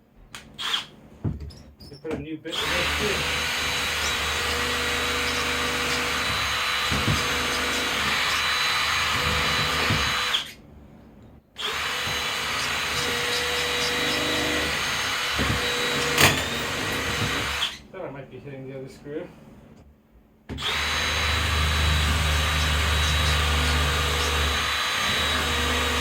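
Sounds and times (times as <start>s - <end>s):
power drill whining: 0.6s - 0.9s, 2.5s - 10.6s, 11.6s - 17.8s, 20.6s - 26.0s.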